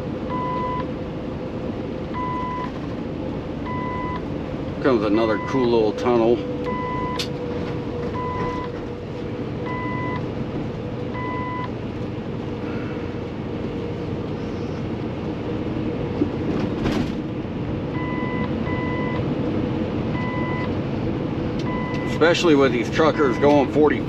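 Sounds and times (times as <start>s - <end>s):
road noise: 0.0s - 24.0s
truck diesel engine droning: 0.0s - 24.0s
short electronic beeps: 6.7s - 7.2s, 8.1s - 8.7s, 9.7s - 10.2s.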